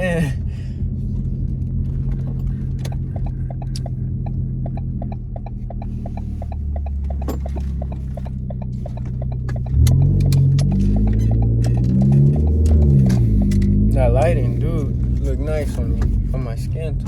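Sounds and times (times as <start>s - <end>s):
car exhaust droning: 0.0s - 17.0s
light ticking: 2.6s - 16.1s.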